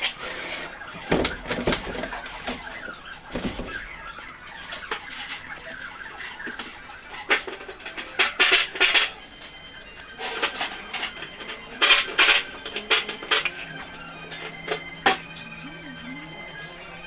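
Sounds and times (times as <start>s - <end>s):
metal objects clinking: 7.2s - 15.8s.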